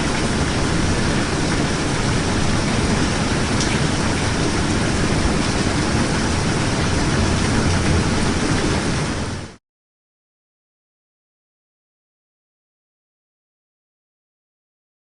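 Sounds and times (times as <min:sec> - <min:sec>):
steady rain falling: 0:00.0 - 0:09.6.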